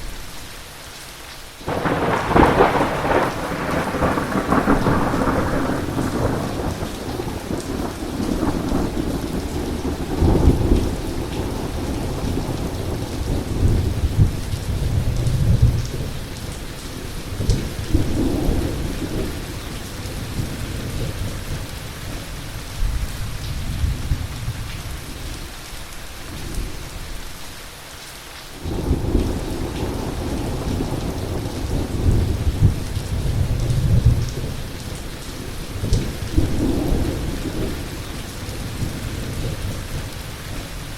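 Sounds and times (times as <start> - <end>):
heavy rain pouring: 0.0 - 40.9
sharp thunder clap: 1.7 - 14.4
thunder rumbling: 1.7 - 25.1, 28.6 - 40.9.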